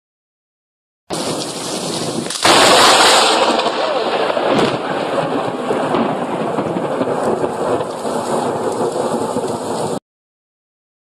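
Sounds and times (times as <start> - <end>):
heavy rain hissing: 1.1 - 10.0
thunder rumbling: 1.1 - 10.0.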